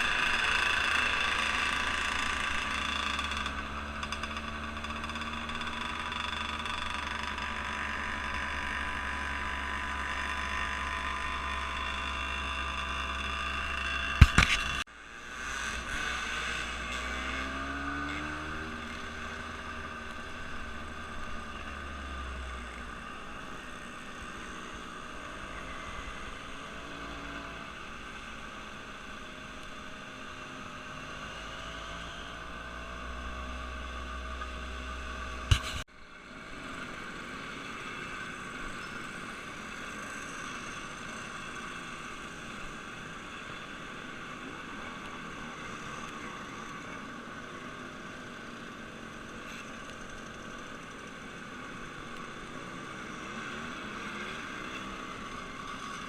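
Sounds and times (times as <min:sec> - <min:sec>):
engine rumbling: 0:00.0 - 0:56.0
sharp click: 0:14.2 - 0:14.8, 0:35.5 - 0:35.8.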